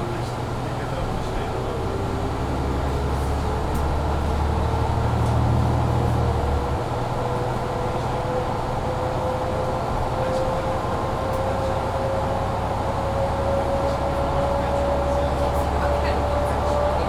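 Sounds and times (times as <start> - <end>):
bus engine drone: 0.0 - 17.0.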